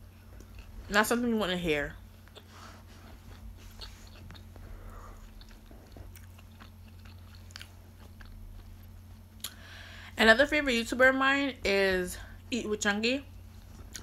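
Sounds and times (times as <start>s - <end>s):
steady low hum: 0.0s - 14.0s
chewing mouth clicks and smacks: 3.3s - 4.6s, 5.2s - 9.6s.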